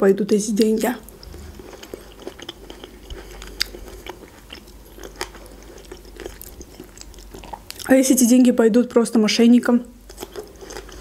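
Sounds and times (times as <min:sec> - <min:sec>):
wet chewing: 0:00.6 - 0:07.9, 0:10.0 - 0:11.0.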